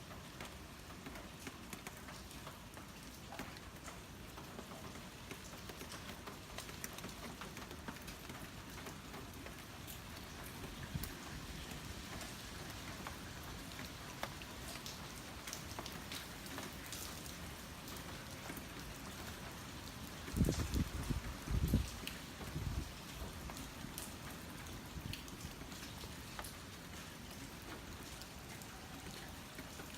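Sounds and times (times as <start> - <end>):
heavy rain falling: 0.0 - 29.9
raindrops ticking on surfaces: 0.0 - 29.9.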